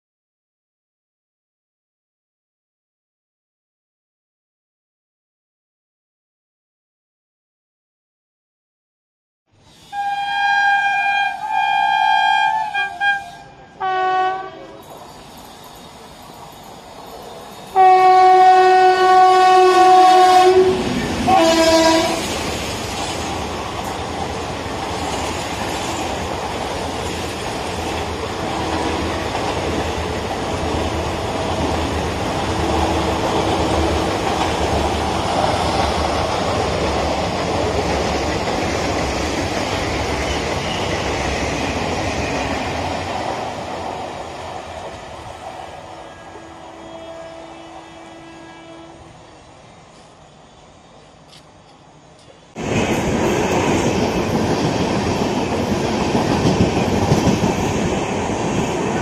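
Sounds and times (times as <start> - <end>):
train coaches rumbling past: 9.6 - 59.0
train horn blasts: 9.9 - 14.8, 17.8 - 22.3, 46.0 - 49.2
wheels clacking over rail joints: 51.3 - 59.0.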